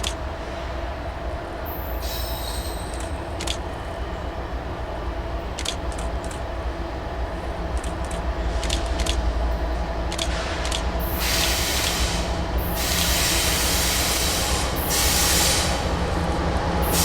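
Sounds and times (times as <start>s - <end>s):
sharp clicks: 0.0s - 0.2s, 2.9s - 3.6s, 5.6s - 6.4s, 7.8s - 9.2s, 10.1s - 12.0s
freight train rumbling past: 0.0s - 17.0s.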